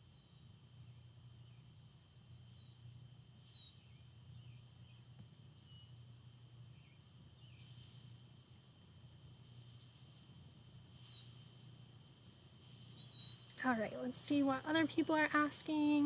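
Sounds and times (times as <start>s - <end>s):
faint bird chirps: 6.8s - 8.0s, 10.9s - 11.7s, 12.6s - 13.6s.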